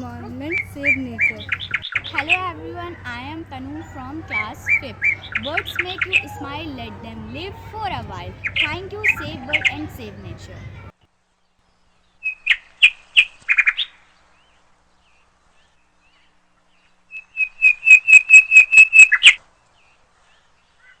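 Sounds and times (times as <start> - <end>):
small bird chirping: 0.0 - 10.9.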